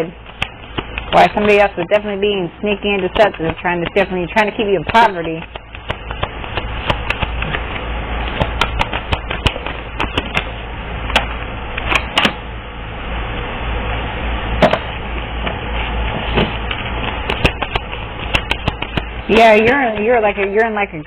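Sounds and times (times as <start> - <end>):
low hum: 0.0 - 21.0
cards being shuffled: 0.2 - 10.5, 16.3 - 20.8.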